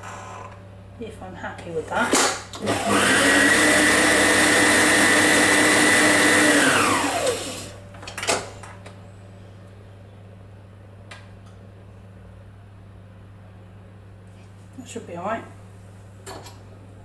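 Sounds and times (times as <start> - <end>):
electric blender whining: 2.6 - 7.8.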